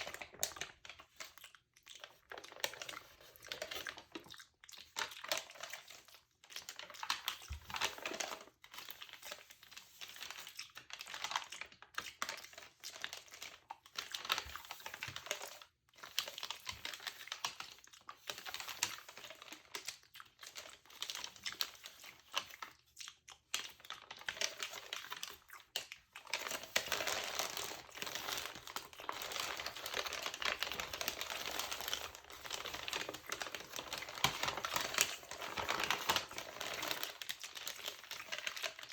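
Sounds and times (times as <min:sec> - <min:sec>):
magazine page crinkling: 0:26.2 - 0:38.9.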